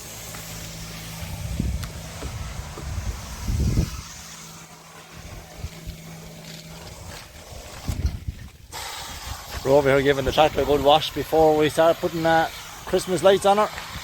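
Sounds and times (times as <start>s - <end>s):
motor humming: 0.0s - 14.0s
low rumbles: 0.2s - 11.3s.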